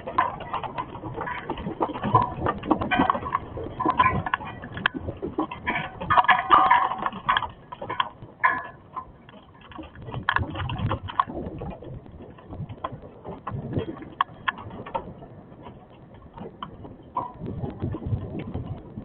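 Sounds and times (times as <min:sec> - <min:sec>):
hailstones striking hard surfaces: 0:00.0 - 0:15.1.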